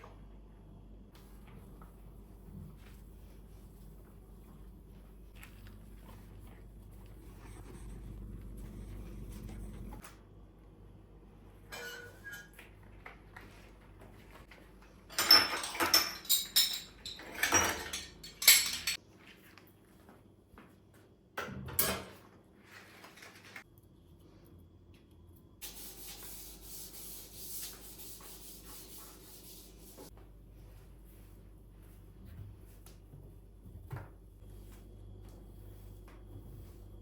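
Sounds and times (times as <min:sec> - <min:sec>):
household items clattering: 0:15.1 - 0:19.0.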